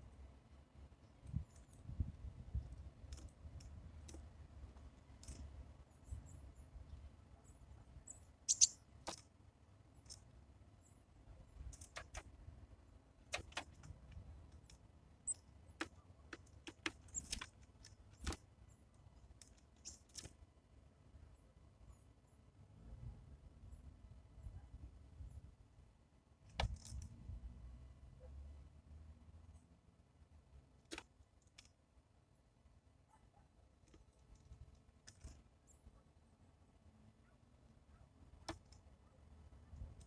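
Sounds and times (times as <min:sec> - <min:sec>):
high bird chirps: 0:08.5 - 0:08.8
beaks tapping on seed and feeder: 0:08.5 - 0:09.2, 0:13.4 - 0:13.9, 0:14.6 - 0:18.4.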